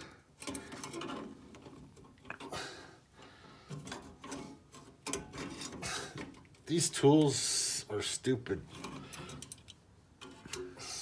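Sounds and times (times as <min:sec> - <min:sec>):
metal scraping on metal: 0:00.4 - 0:02.6, 0:03.6 - 0:06.4, 0:08.6 - 0:11.0
hand tools clicking on metal: 0:08.7 - 0:11.0.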